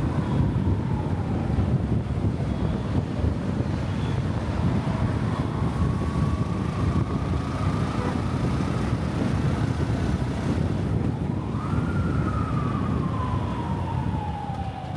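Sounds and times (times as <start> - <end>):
traffic rumble: 0.0 - 14.9
wind: 0.0 - 14.9
siren wailing: 11.4 - 14.9.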